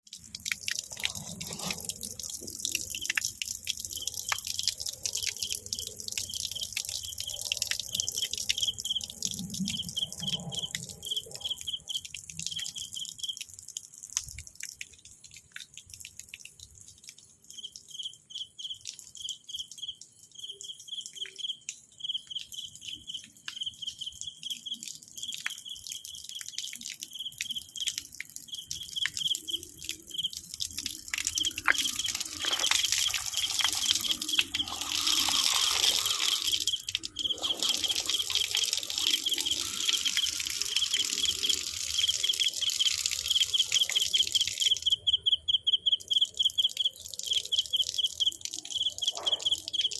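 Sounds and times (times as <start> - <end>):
insects hissing and ticking: 3.9 - 13.4, 17.5 - 49.9
insects chirping: 6.2 - 13.4, 17.5 - 49.9.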